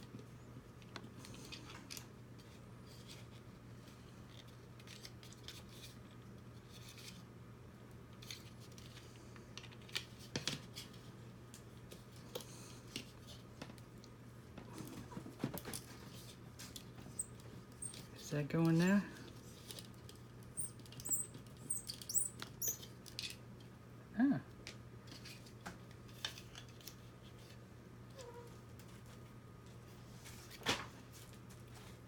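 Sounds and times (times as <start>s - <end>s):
small parts clicking and rustling: 15.6s - 23.7s.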